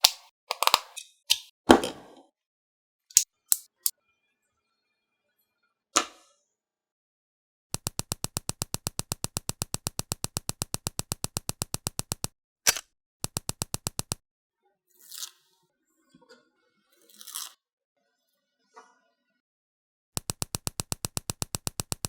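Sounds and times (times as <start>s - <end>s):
fast even clicking: 7.8s - 14.2s, 20.2s - 22.0s.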